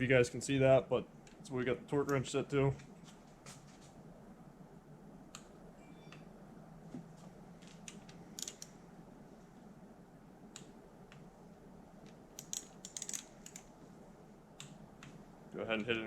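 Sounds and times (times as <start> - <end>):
faint steady hum: 0.0 - 16.0
torque wrench clicks: 8.4 - 8.7, 12.4 - 13.7.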